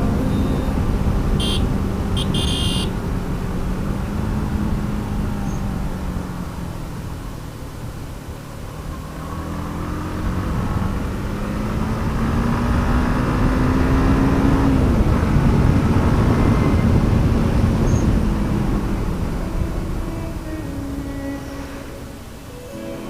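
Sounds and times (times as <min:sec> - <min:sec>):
wind and road noise: 0:00.0 - 0:23.0
motorcycle engine accelerating: 0:08.6 - 0:22.8.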